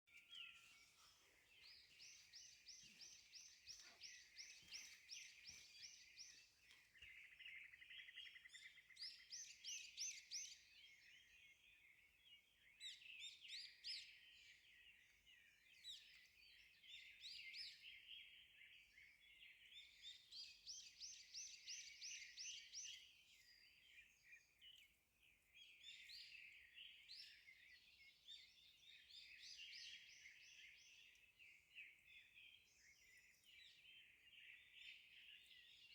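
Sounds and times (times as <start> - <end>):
birds chirping: 0.1 - 9.4.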